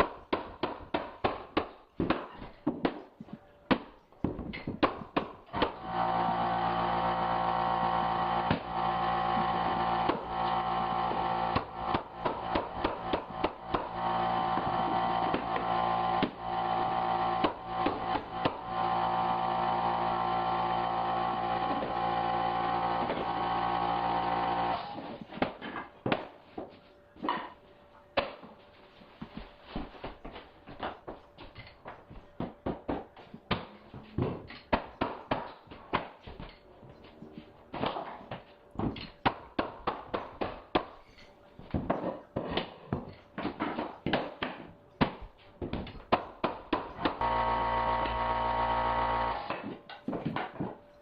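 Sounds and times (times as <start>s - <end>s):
motor humming: 5.6s - 25.0s, 47.0s - 49.6s.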